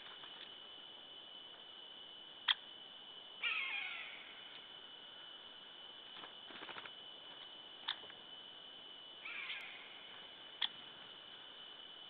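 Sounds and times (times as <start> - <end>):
steady high whine: 0.0 - 12.0
scratchy bird call: 3.4 - 4.2.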